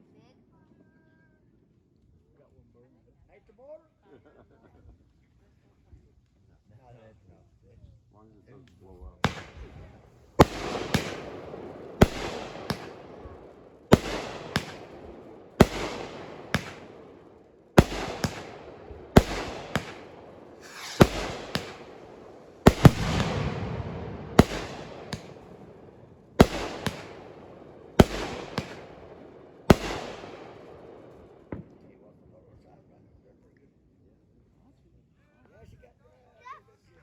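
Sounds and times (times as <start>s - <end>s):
fireworks crackling rumble: 8.9s - 32.0s
fireworks bangs: 9.2s - 31.9s.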